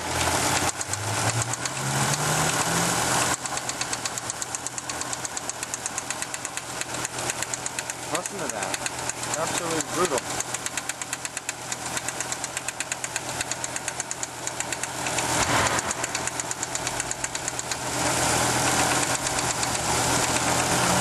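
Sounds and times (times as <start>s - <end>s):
car engine running: 0.0s - 21.0s
rapid regular engine ticking: 0.0s - 21.0s.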